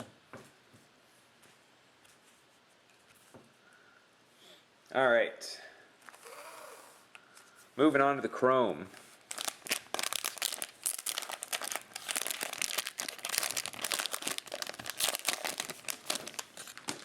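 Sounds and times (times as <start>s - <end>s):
plastic wrapping crinkling: 9.0s - 17.0s.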